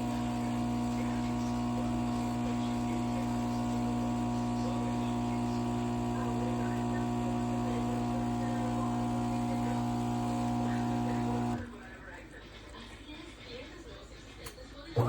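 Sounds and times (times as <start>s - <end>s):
machine hum: 0.0s - 11.6s.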